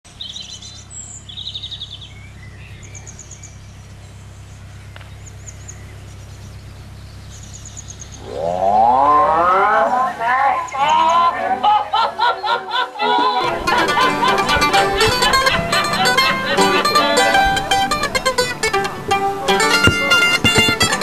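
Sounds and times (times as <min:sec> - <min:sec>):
small birds chirping: 0:00.0 - 0:11.5
rising pitched glide: 0:08.2 - 0:11.6
music: 0:13.5 - 0:21.0.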